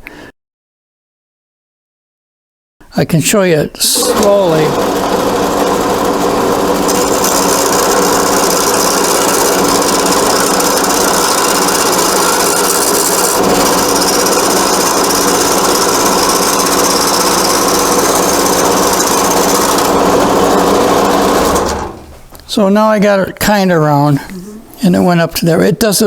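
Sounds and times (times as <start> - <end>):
lathe motor hum: 3.9 - 22.4
turning tool scraping wood: 3.9 - 22.5.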